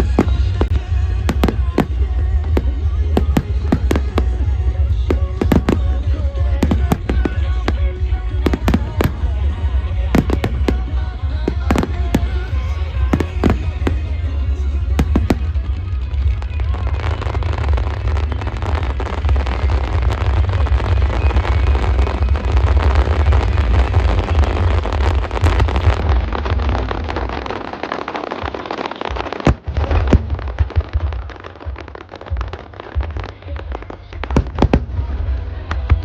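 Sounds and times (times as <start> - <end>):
fireworks crackling: 0.0 - 36.0
sharp loud fireworks bangs: 0.0 - 36.0.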